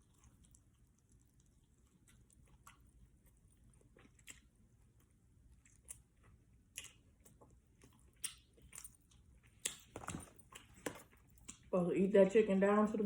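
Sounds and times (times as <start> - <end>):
chewing crispy fried chicken: 0.0 - 11.8.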